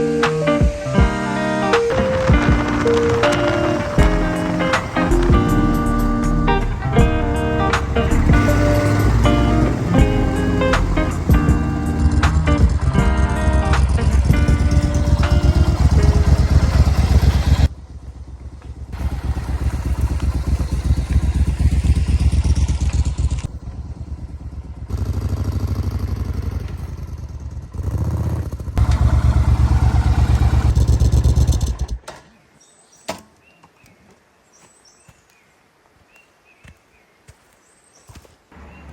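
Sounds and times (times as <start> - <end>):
motorcycle engine running: 0.6 - 32.0.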